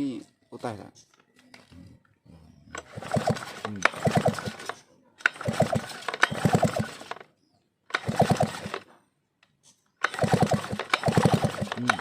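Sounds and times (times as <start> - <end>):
chainsaw engine cranking: 2.7 - 7.3, 7.9 - 8.9, 10.0 - 12.0.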